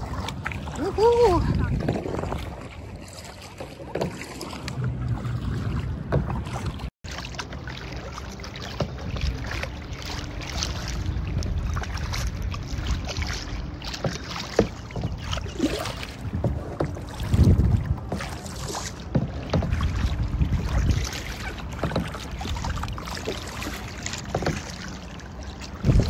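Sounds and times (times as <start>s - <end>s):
wind buffeting microphone: 0.0s - 3.5s, 10.7s - 13.8s, 14.9s - 18.4s, 19.2s - 23.0s, 25.7s - 26.0s
water splashing around a kayak: 0.0s - 26.0s.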